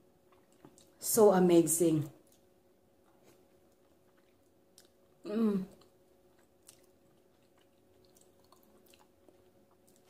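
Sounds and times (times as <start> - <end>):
soft chewing: 0.0 - 1.0, 2.1 - 10.0
person humming: 5.2 - 5.8.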